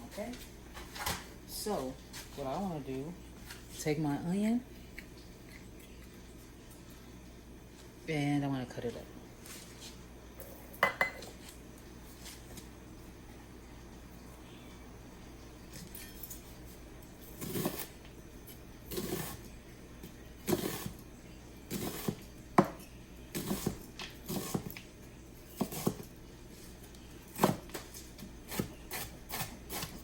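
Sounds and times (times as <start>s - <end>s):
knife cutting onion on board: 17.4s - 17.9s, 18.9s - 19.4s, 20.4s - 21.0s, 21.7s - 24.7s, 25.5s - 26.1s, 27.3s - 30.0s.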